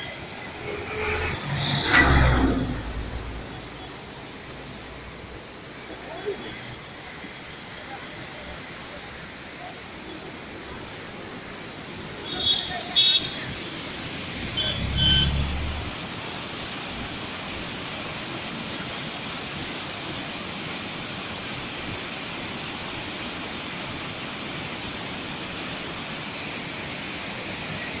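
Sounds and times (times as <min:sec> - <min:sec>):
waterfall roaring: 0:00.0 - 0:01.8, 0:02.7 - 0:28.0
low hum: 0:00.5 - 0:04.1.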